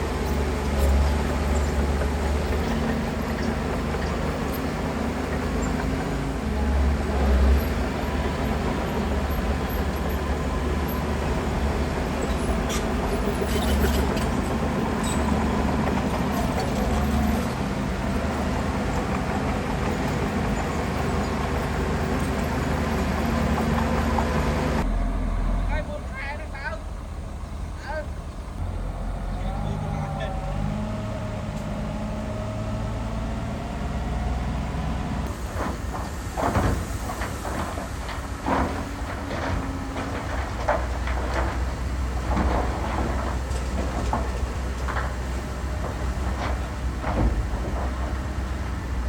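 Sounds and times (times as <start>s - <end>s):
diesel earthmoving machine drone: 0.0s - 49.0s
knocks and clanks: 35.3s - 49.0s.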